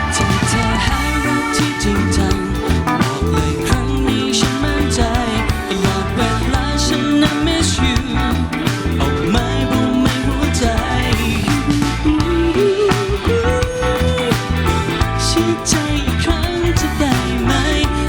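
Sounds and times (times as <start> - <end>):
melody bending in pitch: 0.0 - 7.2
band music with guitar and drums: 0.0 - 18.0.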